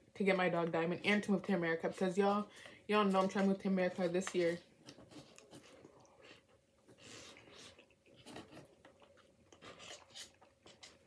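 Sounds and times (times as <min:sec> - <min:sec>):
chewing fries: 0:04.2 - 0:11.0.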